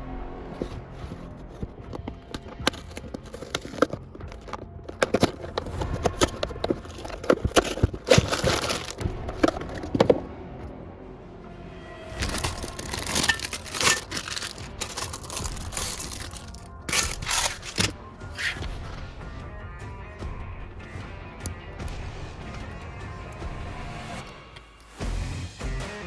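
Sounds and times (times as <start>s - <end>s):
packaging being handled: 0.6s - 10.2s, 12.2s - 18.8s
plastic toy bricks clicking: 1.5s - 10.2s, 12.2s - 18.7s.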